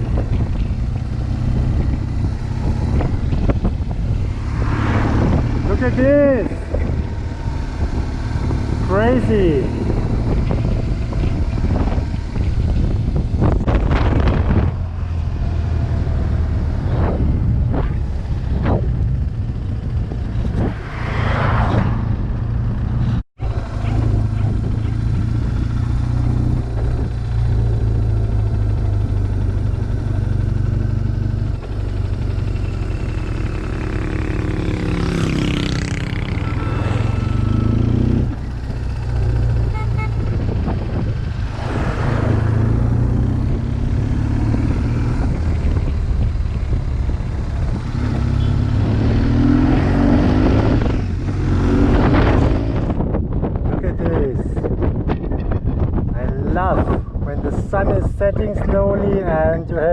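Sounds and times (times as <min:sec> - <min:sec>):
motorcycle engine running: 0:00.0 - 0:20.7, 0:22.1 - 0:54.1
brief whooshing: 0:03.0 - 0:08.9, 0:20.4 - 0:23.2, 0:41.2 - 0:43.6.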